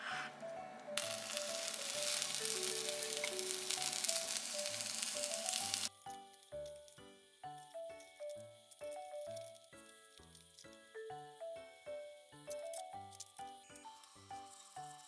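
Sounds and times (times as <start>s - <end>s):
egg sizzling in a pan: 1.0s - 6.9s.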